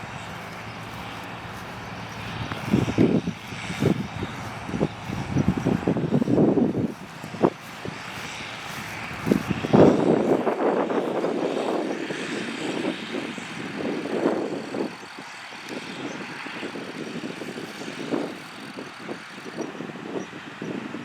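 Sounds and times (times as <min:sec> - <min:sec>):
tractor diesel engine under load: 0:00.0 - 0:10.6.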